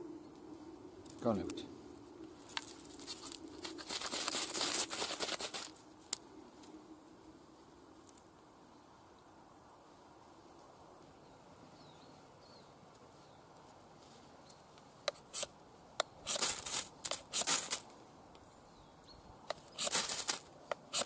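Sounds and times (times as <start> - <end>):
faint outdoor background: 0.0 - 21.0
sharp clicks: 15.1 - 17.9, 19.4 - 21.0
knife scraping strokes: 16.2 - 17.8, 19.5 - 21.0.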